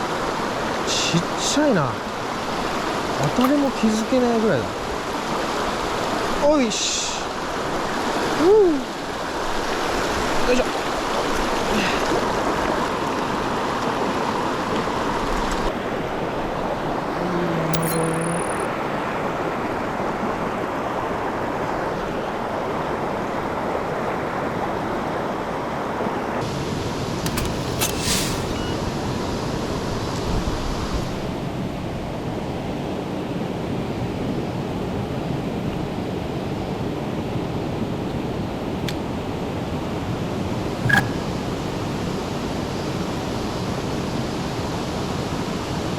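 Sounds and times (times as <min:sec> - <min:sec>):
mountain stream rushing: 0:00.0 - 0:17.1
brief tone: 0:17.7 - 0:18.7, 0:27.3 - 0:29.0, 0:40.8 - 0:41.4
sharp clicks: 0:17.8 - 0:18.7.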